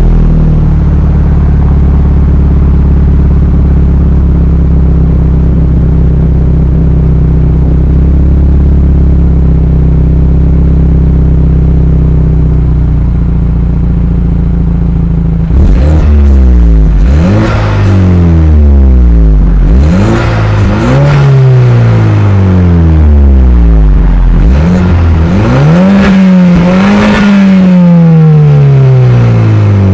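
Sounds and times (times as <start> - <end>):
car engine idling with deep drone: 0.0 - 29.9.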